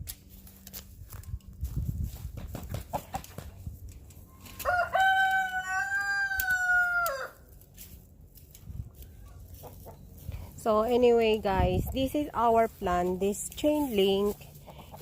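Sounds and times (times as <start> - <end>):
rooster crowing: 4.4 - 7.5.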